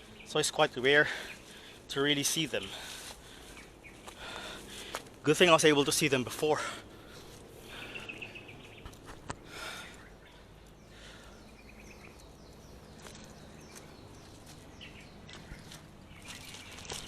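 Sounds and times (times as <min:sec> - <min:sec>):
bird chirping trill: 0:07.6 - 0:09.1, 0:09.8 - 0:17.0.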